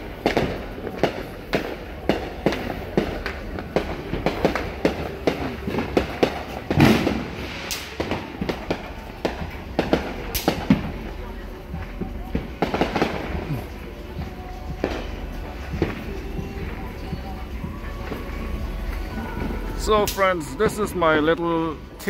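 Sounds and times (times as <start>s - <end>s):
firecrackers banging and popping: 0.0s - 22.0s
loud firework boom: 5.2s - 8.8s.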